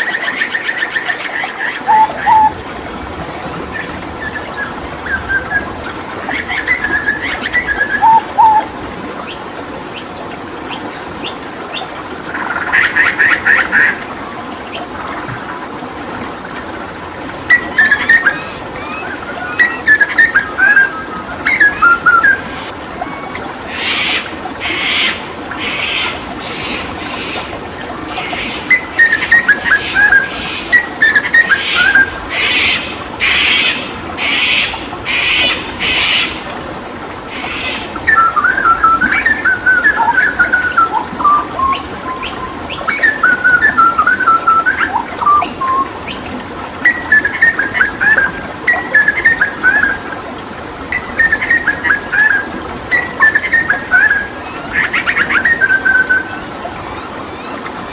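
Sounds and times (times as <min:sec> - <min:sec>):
running water: 0:00.0 - 0:57.9
bird singing whistled phrases: 0:38.1 - 0:45.9.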